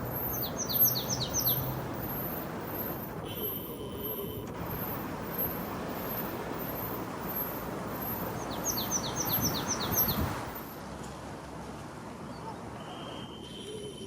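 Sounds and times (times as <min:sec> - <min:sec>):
small songbird singing: 0:00.0 - 0:10.7.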